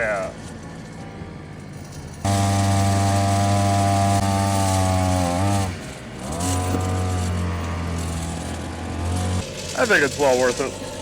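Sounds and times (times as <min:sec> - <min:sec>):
outboard motor buzzing: 0:02.2 - 0:11.0.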